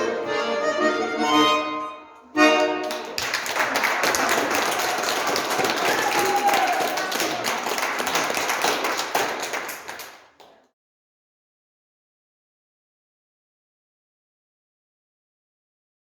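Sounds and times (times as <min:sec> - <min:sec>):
accordion chord: 0:00.0 - 0:03.3
audience applauding: 0:02.5 - 0:10.6.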